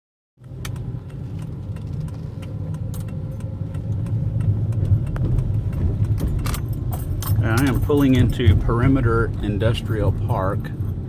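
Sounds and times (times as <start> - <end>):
light rattling clicks: 0.4 - 8.6
car road and engine rumble: 0.4 - 11.0.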